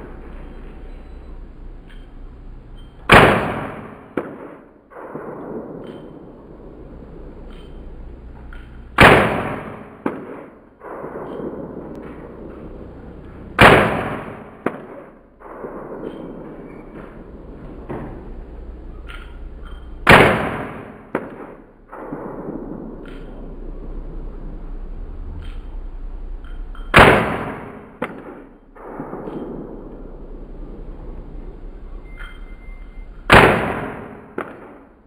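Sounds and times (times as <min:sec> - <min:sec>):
rifle shots: 0:03.0 - 0:07.8, 0:08.5 - 0:18.4, 0:20.0 - 0:24.5, 0:26.8 - 0:30.8, 0:33.2 - 0:35.0.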